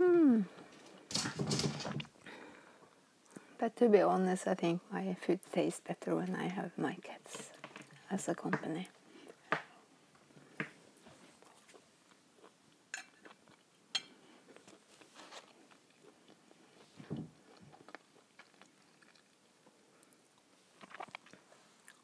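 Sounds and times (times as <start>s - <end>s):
chewing and mouth sounds: 14.4s - 22.0s.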